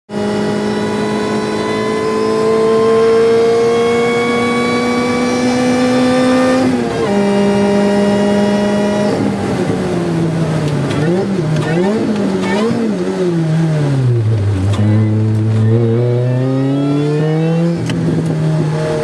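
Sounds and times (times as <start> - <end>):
car engine accelerating: 0.1 - 19.0.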